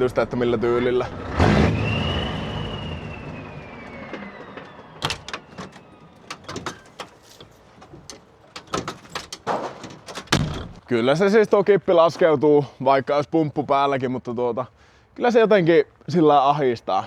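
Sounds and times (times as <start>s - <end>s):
truck engine running: 0.0s - 10.3s
hydraulic whine falling in pitch: 1.4s - 6.1s
knocks and clicks: 4.0s - 10.8s.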